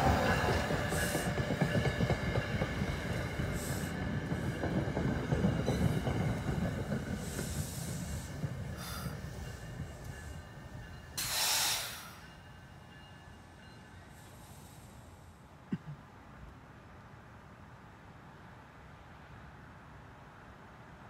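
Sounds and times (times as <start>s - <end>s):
train wheels rumbling on rails: 0.0s - 15.2s
brief hissing rushes: 11.2s - 12.2s.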